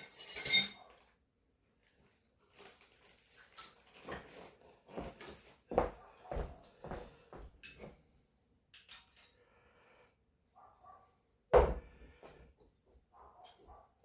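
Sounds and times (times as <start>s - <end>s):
metal tools clattering: 0.0s - 0.9s, 3.5s - 4.1s, 8.7s - 9.4s.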